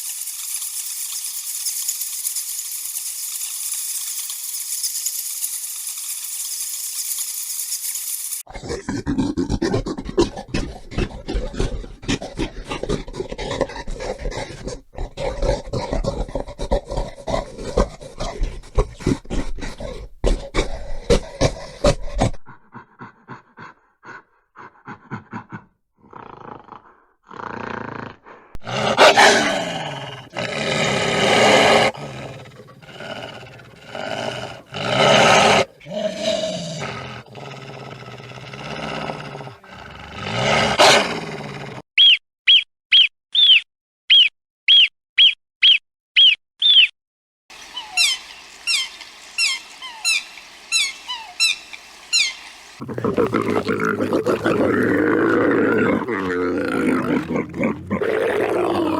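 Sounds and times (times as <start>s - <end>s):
rapid repeated animal calls: 47.5s - 58.9s
loud animal calls falling in pitch: 47.6s - 52.5s.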